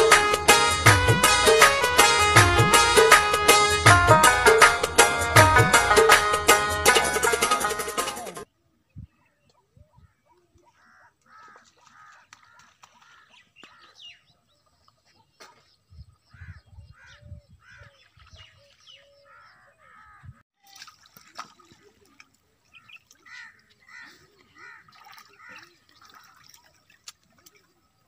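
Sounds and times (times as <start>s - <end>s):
bird calls: 8.8s - 20.4s, 21.7s - 28.0s.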